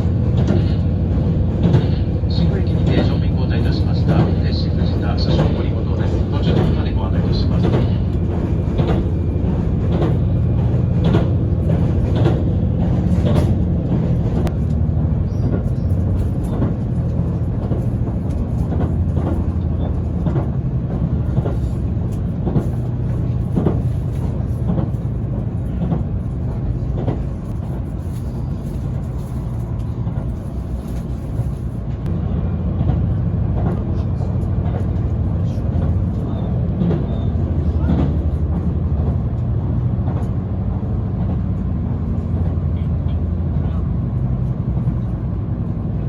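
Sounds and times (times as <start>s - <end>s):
wheels clacking over rails: 0.0s - 32.1s, 32.7s - 46.0s
train interior rumble: 0.0s - 46.0s.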